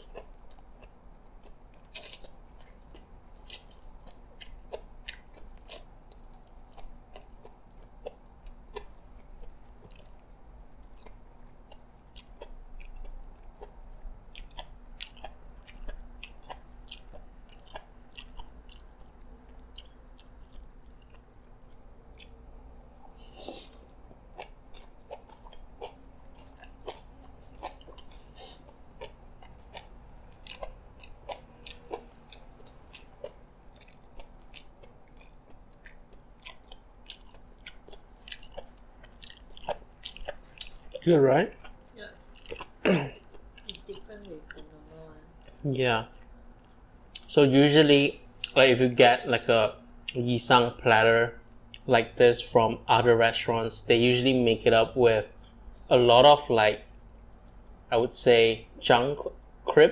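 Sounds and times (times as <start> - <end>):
person chewing crunchy salad: 0.0 - 43.9, 45.4 - 47.3.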